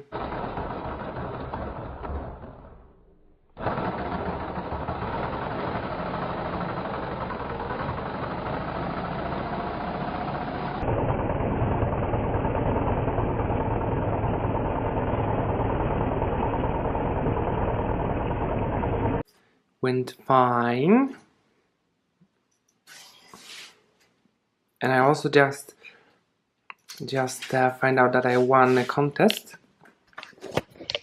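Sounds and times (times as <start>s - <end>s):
steady engine noise: 0.0s - 2.9s, 3.6s - 19.2s.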